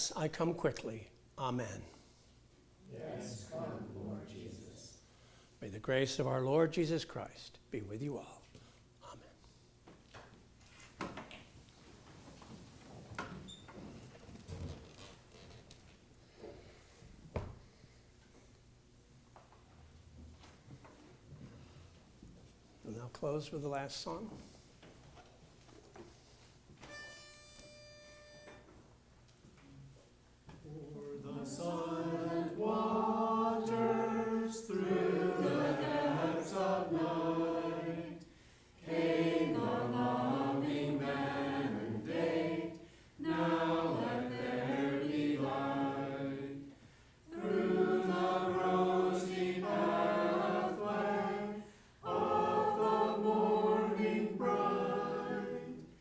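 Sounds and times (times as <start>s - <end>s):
congregation singing a hymn: 2.9s - 5.1s, 30.6s - 56.0s.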